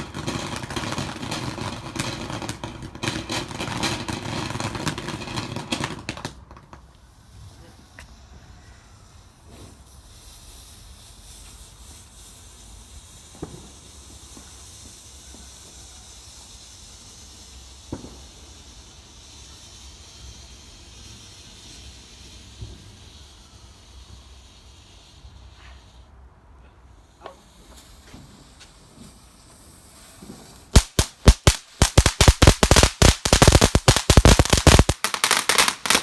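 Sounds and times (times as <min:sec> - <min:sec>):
firework fountain hissing: 0:00.0 - 0:36.0
sharp pops: 0:30.2 - 0:36.0.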